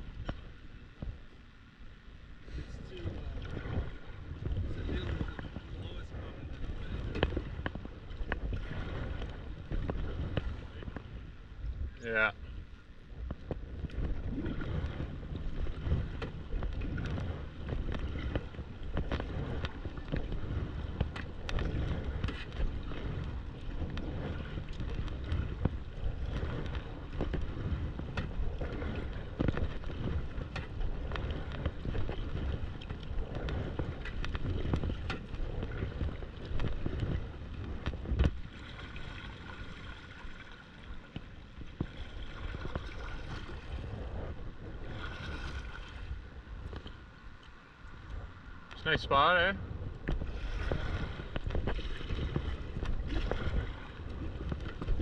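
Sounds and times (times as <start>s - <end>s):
wind rumbling on microphone: 0.0s - 55.0s
paddle knocks: 15.7s - 38.7s.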